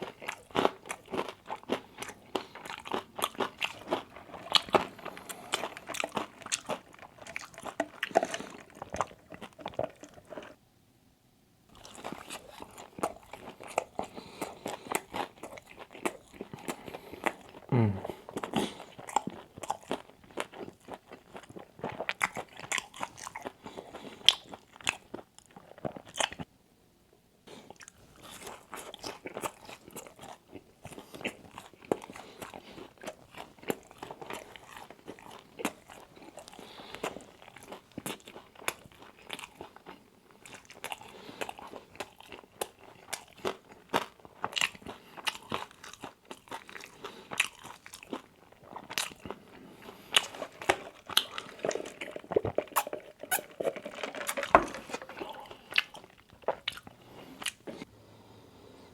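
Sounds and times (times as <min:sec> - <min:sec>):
chewing crispy fried chicken: 0:00.0 - 0:10.6, 0:11.7 - 0:26.5, 0:27.5 - 0:58.9.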